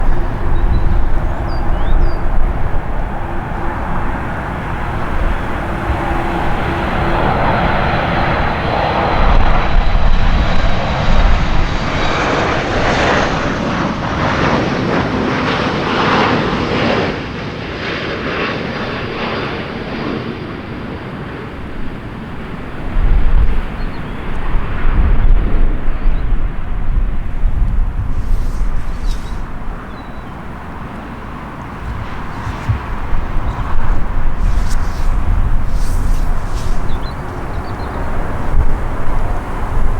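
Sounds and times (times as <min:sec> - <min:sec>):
jet engines passing: 0:00.0 - 0:39.9
strong low rumbles: 0:26.5 - 0:39.9.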